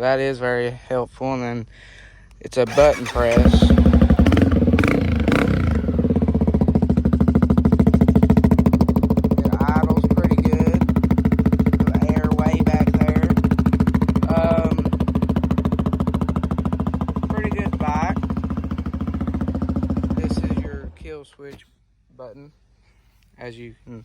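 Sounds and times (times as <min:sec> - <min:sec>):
motorcycle engine idling: 0:02.7 - 0:21.1.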